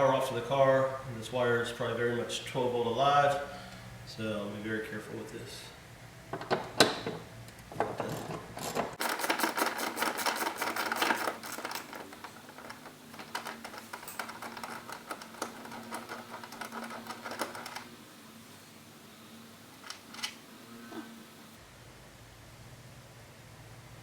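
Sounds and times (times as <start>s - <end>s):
rapid metallic clicking and rattling: 7.8s - 18.0s.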